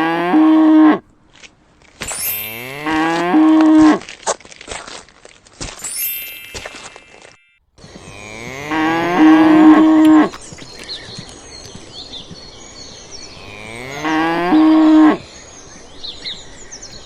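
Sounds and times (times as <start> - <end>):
cow mooing: 0.0 - 1.0, 2.6 - 4.0, 7.9 - 10.4, 13.3 - 15.2
birds chirping faintly: 5.9 - 17.0.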